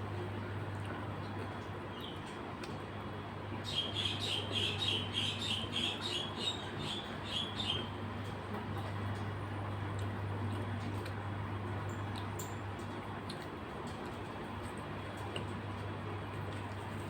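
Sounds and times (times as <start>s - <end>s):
steady low hum: 0.0s - 17.0s
bird chirping: 3.6s - 7.9s.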